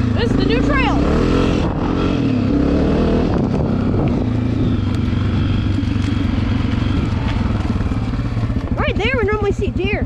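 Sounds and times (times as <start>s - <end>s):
dirt bike engine running: 0.0s - 10.0s.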